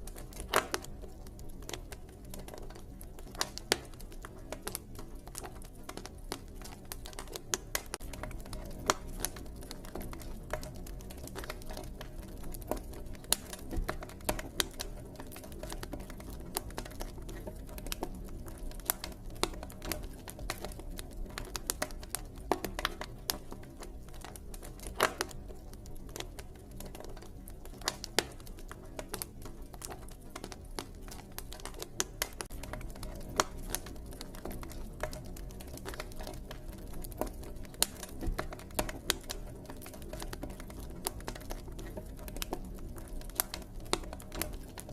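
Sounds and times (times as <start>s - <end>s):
campfire crackling: 0.0s - 44.9s.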